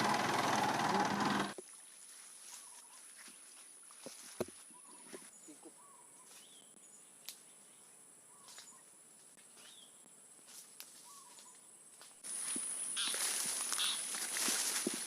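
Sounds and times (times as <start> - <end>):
bird chirps: 4.7 - 8.9.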